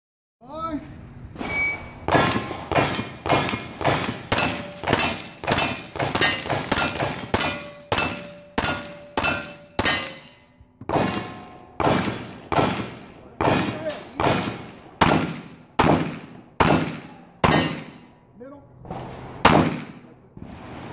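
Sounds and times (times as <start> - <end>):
loud rapid knocks: 2.1 - 10.0.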